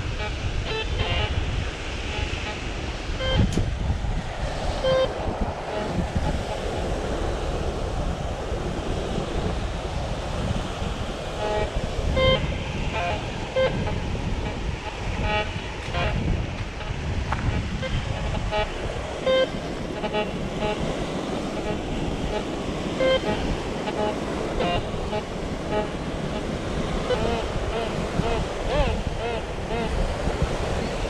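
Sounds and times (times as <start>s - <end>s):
surf: 0.0s - 31.0s
wind on microphone: 0.0s - 31.0s
metal detector beeps: 3.2s - 3.5s.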